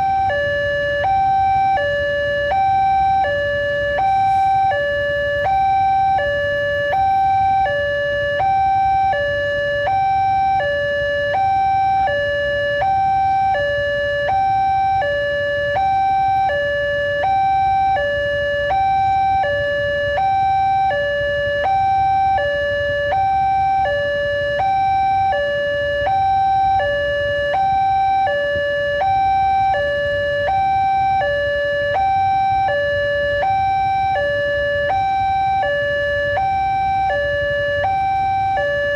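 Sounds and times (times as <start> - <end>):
level crossing two-tone alarm: 0.0 - 38.9.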